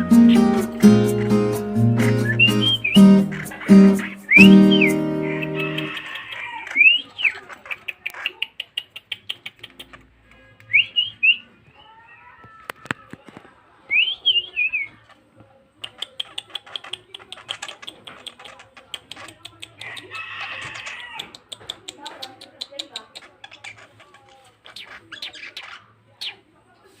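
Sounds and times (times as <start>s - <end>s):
whistled bird notes: 0.0s - 7.4s, 10.7s - 12.0s, 13.9s - 14.9s
bird chattering harsh ticks: 0.3s - 10.2s, 15.8s - 26.4s.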